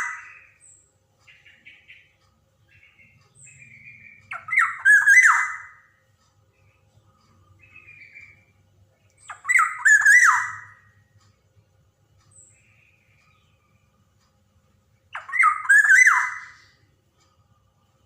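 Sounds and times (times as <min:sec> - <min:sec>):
bird calling with whistles and rasps: 0:00.0 - 0:05.9, 0:07.6 - 0:08.5, 0:09.2 - 0:11.0, 0:15.1 - 0:16.8
soft bird calls: 0:00.0 - 0:18.0.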